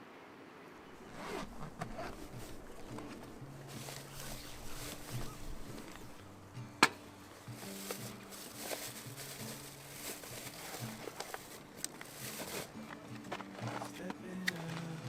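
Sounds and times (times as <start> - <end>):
rustling and scraping: 0.9 - 6.4, 7.2 - 15.0
zipper being pulled: 1.0 - 6.2, 7.6 - 12.7.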